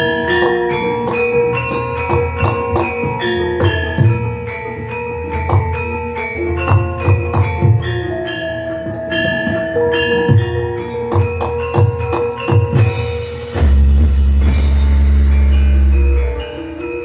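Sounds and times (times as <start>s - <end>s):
gamelan playing: 0.0s - 17.0s
hand drum strokes: 9.5s - 17.0s
large gong ringing: 12.8s - 17.0s.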